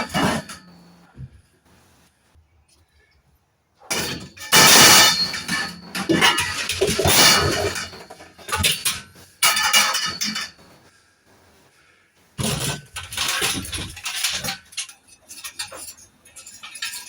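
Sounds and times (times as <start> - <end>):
metal scrap clattering and crashing: 0.0 - 1.0, 3.9 - 10.7, 12.4 - 17.0.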